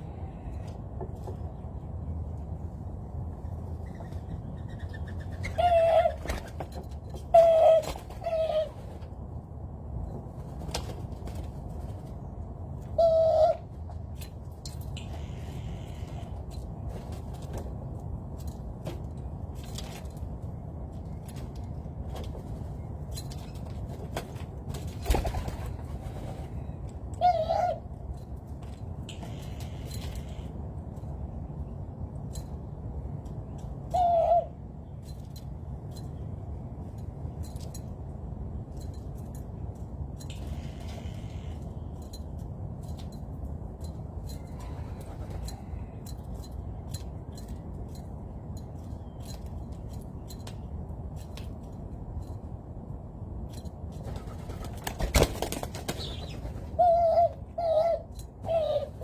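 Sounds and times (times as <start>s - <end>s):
low background hum: 0.0s - 59.0s
bird hooting coo: 5.4s - 6.3s, 7.3s - 8.9s, 13.0s - 13.7s, 27.2s - 27.8s, 33.9s - 34.6s, 56.0s - 59.0s.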